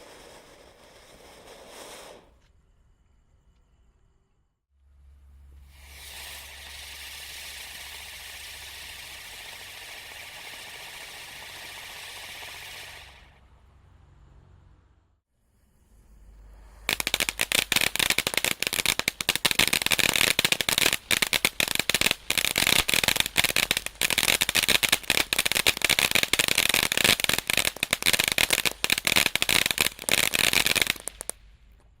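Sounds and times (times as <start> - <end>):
firework fountain hissing and crackling: 0.0 - 2.4, 5.5 - 13.5, 16.4 - 31.6.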